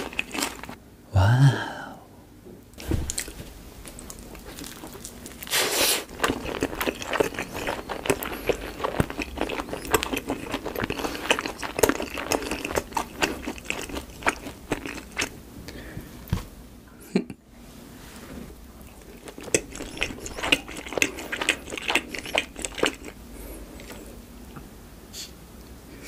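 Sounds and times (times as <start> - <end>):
crunchy chewing: 0.0 - 0.8, 3.1 - 15.4, 18.8 - 24.2
biting into fried chicken: 3.1 - 15.3.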